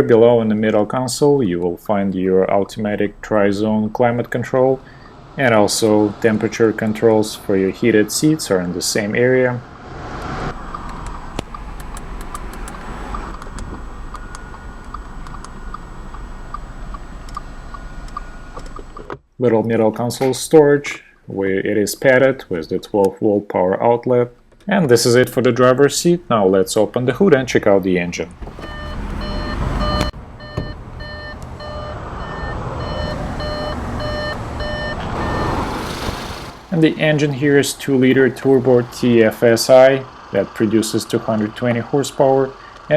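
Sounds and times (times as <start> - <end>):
steady low rumble: 0.0 - 19.0
car engine rumble: 0.0 - 19.3, 24.2 - 42.9
light regular ticking: 10.5 - 19.2, 36.7 - 42.9.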